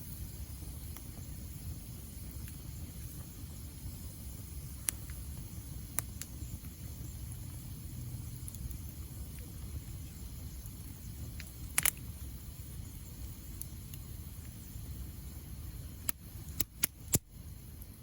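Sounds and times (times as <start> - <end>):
wood fire rumbling: 0.0 - 18.0
crackling wood pops: 10.6 - 12.1, 16.0 - 17.3.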